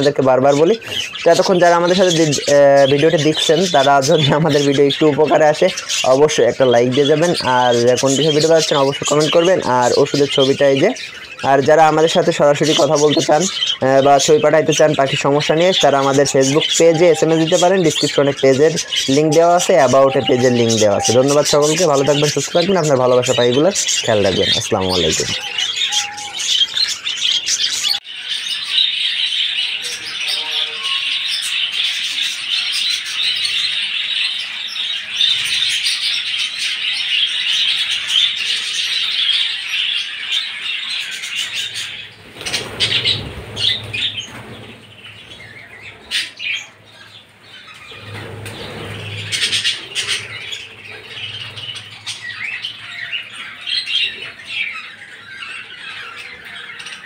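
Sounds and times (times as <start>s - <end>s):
budgerigars chattering and chirping: 0.0s - 57.0s
wings fluttering: 41.4s - 46.6s, 47.7s - 53.2s.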